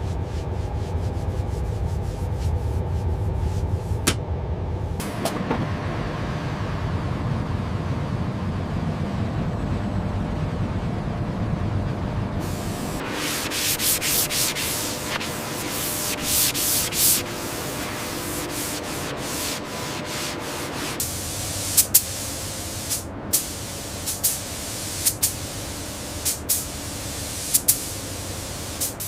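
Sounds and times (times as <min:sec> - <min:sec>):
rubbing strokes on a surface: 0:00.0 - 0:04.0, 0:12.6 - 0:22.1
short sharp hissing bursts: 0:12.4 - 0:29.0.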